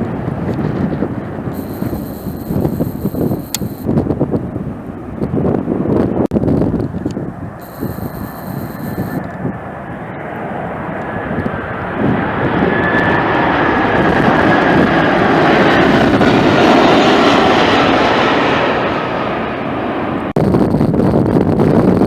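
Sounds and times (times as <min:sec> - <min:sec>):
wind buffeting microphone: 0:00.0 - 0:18.5, 0:20.2 - 0:22.0
jet airliner roar passing: 0:00.0 - 0:20.6
faint high whine: 0:01.6 - 0:03.9, 0:07.6 - 0:09.3.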